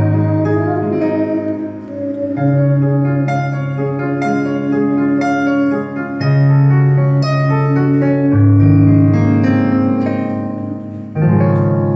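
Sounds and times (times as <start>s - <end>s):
piano playing slow chords: 0.0s - 11.9s.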